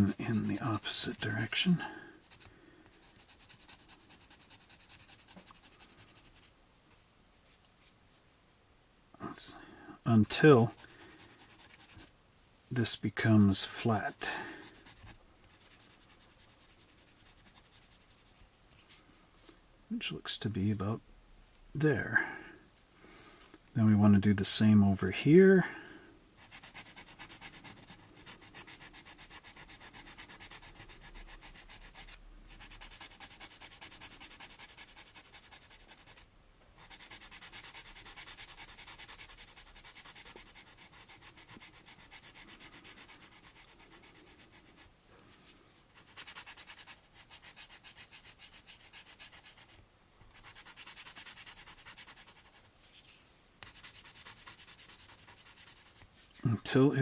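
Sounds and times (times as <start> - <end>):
sandpaper rubbing on plastic: 0.0 - 6.5, 10.5 - 12.1, 13.6 - 18.4, 26.4 - 56.5.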